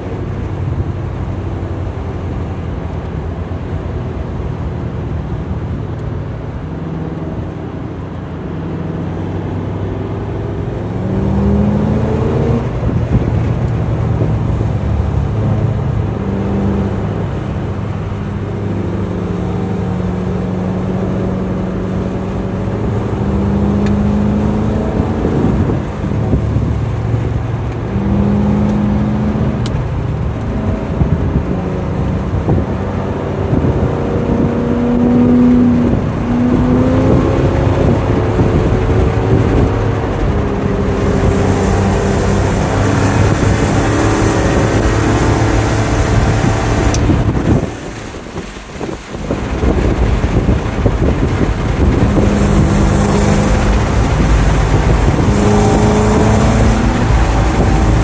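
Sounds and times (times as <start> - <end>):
car engine revving: 0.0 - 58.0
wind and tyre noise: 0.0 - 58.0.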